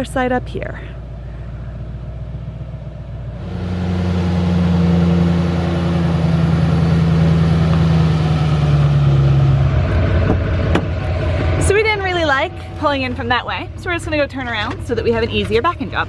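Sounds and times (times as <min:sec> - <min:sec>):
vehicle engine towing trailer: 0:00.0 - 0:16.0.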